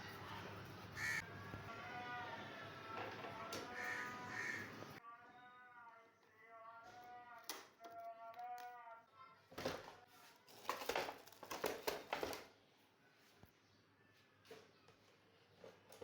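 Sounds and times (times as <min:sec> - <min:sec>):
crow cawing: 0:01.0 - 0:02.7, 0:03.3 - 0:05.0
rustling and clattering handling: 0:09.5 - 0:12.6.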